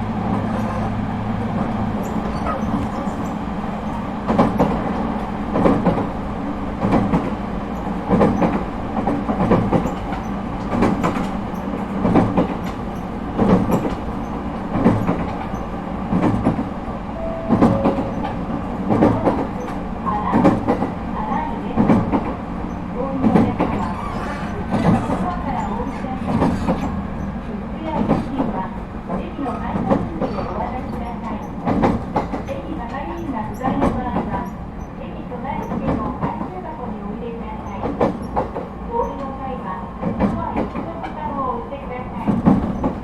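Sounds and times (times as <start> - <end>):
train wheels clacking over rail joints: 6.8 - 16.7, 21.7 - 27.0, 42.2 - 43.0.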